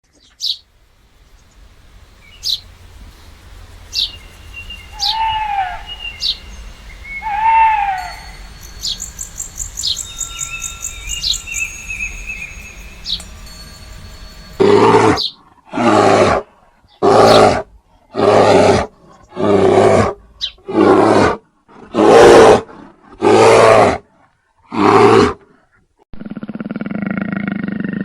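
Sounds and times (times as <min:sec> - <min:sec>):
birds chirping: 0:00.0 - 0:16.2, 0:16.8 - 0:20.7
bird trill: 0:01.3 - 0:15.4.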